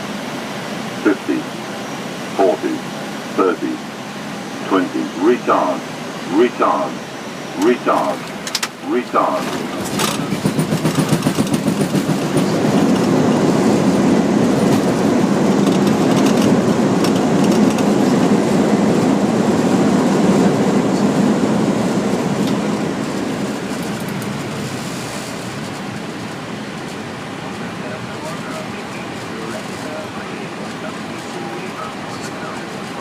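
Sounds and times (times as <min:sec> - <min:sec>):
jet engine reverse thrust: 0:00.0 - 0:33.0
wheels rumbling on runway: 0:00.0 - 0:33.0
rapid rhythmic thumping: 0:09.8 - 0:13.1.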